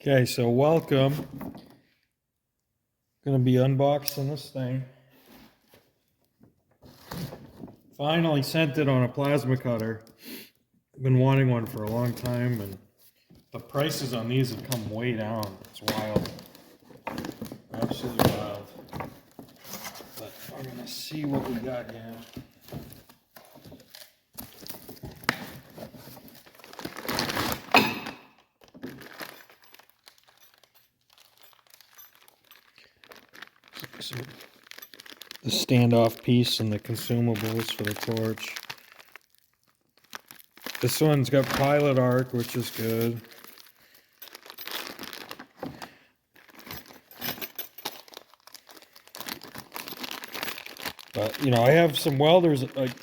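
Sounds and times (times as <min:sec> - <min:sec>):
packaging crinkling and tearing: 0:21.5 - 0:27.7, 0:28.4 - 0:45.6, 0:46.3 - 0:47.1, 0:47.8 - 0:53.0.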